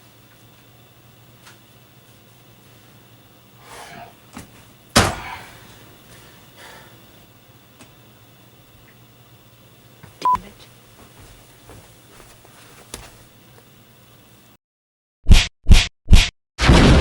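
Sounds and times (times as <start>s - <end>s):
loud slam: 5.0s - 5.4s, 15.3s - 17.0s
soft rustles: 11.0s - 13.3s.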